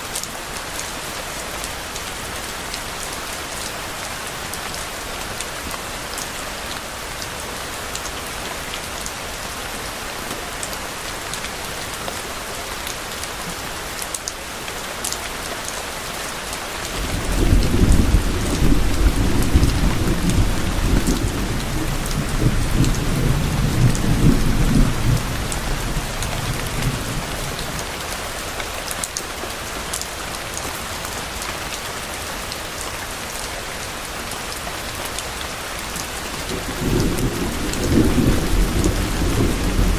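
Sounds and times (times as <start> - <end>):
steady rain falling: 0.0 - 39.9
low rumble of thunder: 17.0 - 27.9, 36.4 - 39.9.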